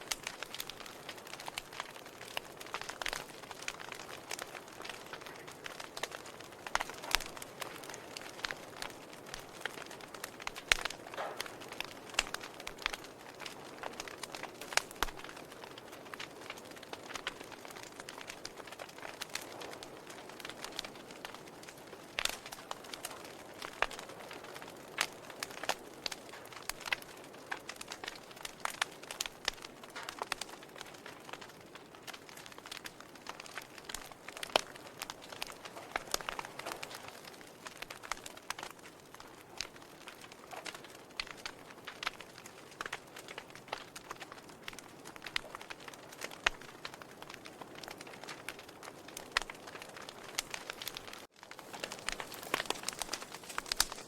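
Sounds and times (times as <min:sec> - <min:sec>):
soft steady hiss: 0:00.0 - 0:30.9
logs crackling in a fireplace: 0:00.0 - 0:54.0.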